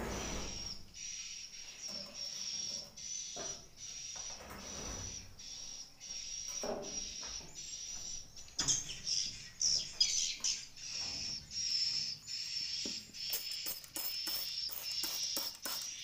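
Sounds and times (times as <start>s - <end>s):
swiftlets twittering: 10.8s - 16.0s.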